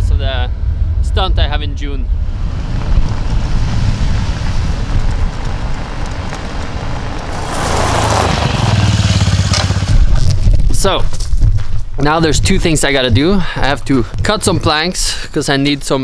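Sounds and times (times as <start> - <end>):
car engine and road rumble: 0.0 - 11.5.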